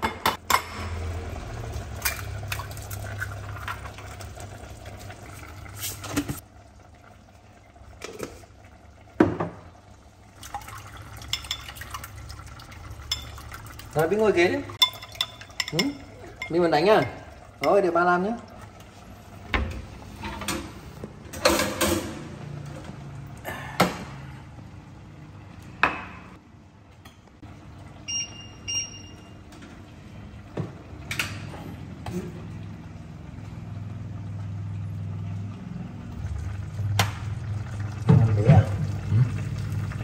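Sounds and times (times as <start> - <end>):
dishes and utensils knocking on counter: 9.2 - 9.6
electronic appliance beeps: 28.0 - 29.5.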